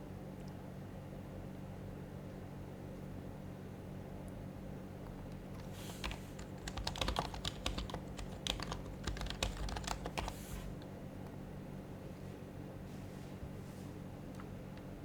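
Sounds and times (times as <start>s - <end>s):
low steady hum: 0.0s - 15.0s
soft keyboard keystrokes: 5.0s - 11.4s.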